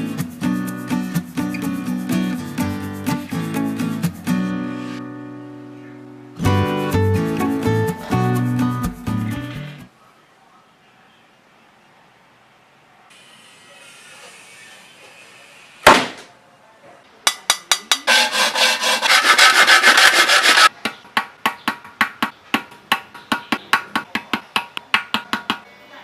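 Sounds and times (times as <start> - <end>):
sharp knock: 15.9 - 16.3
quick scraping strokes: 18.1 - 20.7.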